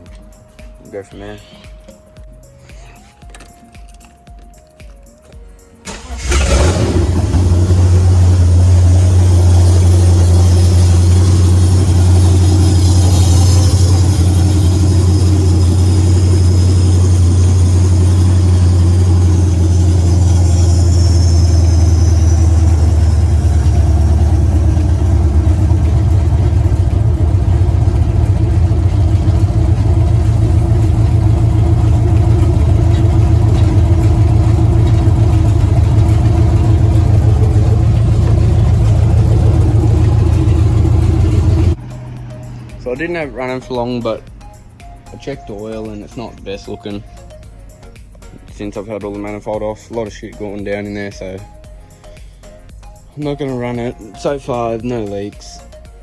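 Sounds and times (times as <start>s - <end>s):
car engine starting and idling: 5.7s - 47.4s.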